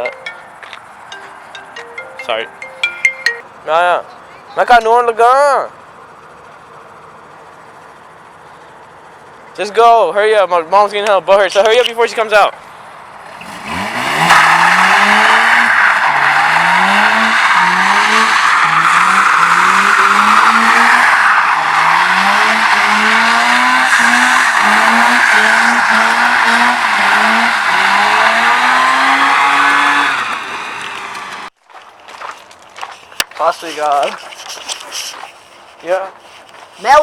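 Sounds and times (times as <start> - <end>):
car engine revving: 3.5 - 31.5
tyres squealing: 11.2 - 12.5, 13.4 - 31.2.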